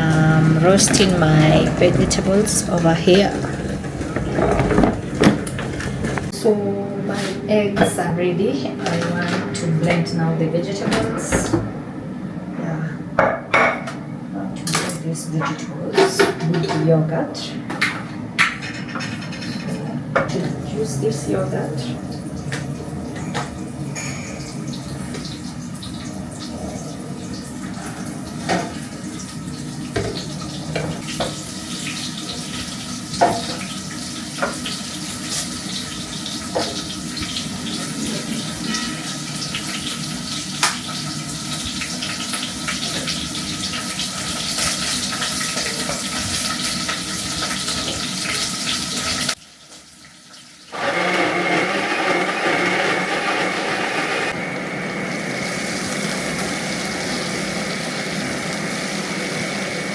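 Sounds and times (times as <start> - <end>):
dishes clinking: 0.1 - 6.3, 17.8 - 20.6, 23.1 - 25.4
water running from a tap: 20.6 - 50.8, 54.3 - 59.9.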